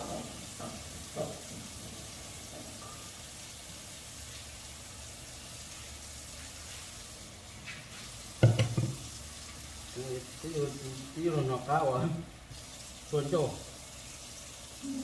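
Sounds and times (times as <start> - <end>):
food sizzling in a pan: 0.0 - 15.0
knock: 8.4 - 9.0.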